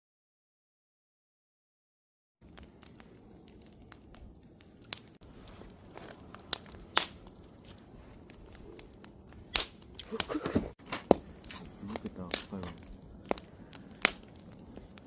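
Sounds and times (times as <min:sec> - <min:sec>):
low rustle of flames: 0:02.4 - 0:15.0
wood fire crackling and popping: 0:02.4 - 0:15.0.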